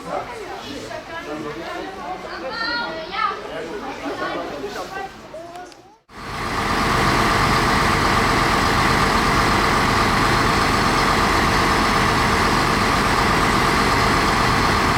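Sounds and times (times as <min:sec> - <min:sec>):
fire engine idling: 0:06.1 - 0:14.9.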